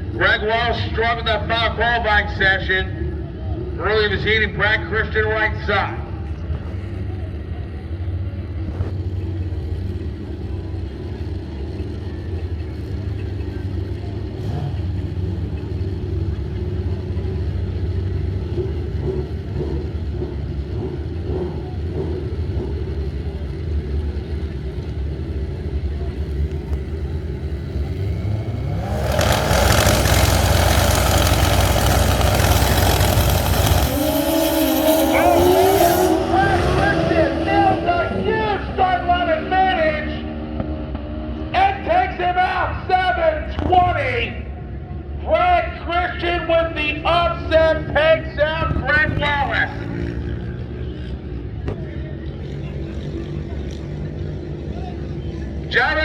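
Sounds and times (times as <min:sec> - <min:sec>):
motorcycles full-throttle run: 0:00.0 - 0:56.0
motorcycles idling and revving: 0:06.0 - 0:39.2, 0:46.8 - 0:56.0.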